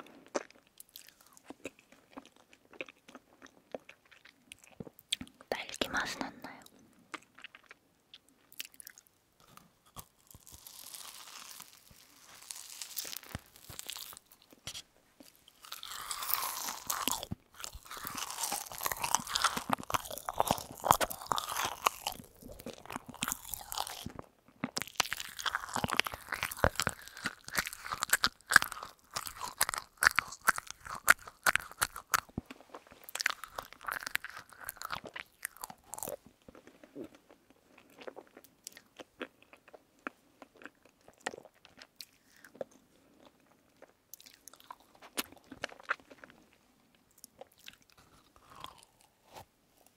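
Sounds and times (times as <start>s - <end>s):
candy crunching between teeth: 0.0s - 49.9s
wet mouth sounds: 11.8s - 42.8s.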